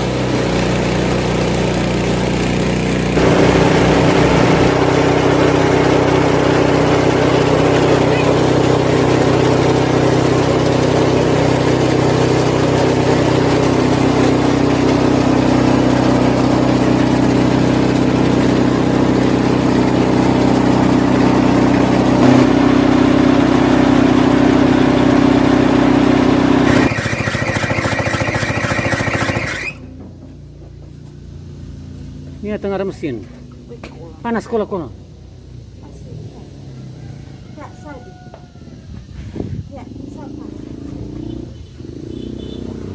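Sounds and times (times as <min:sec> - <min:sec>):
chopping machine engine running: 0:00.0 - 0:31.6
rapid pulsing with high tone: 0:26.6 - 0:29.9.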